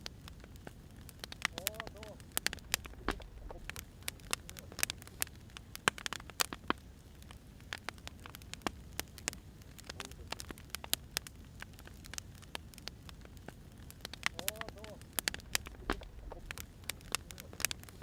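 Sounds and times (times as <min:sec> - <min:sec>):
low steady rumble: 0:00.0 - 0:06.1, 0:06.7 - 0:18.0
burning firewood crackling: 0:00.0 - 0:18.0.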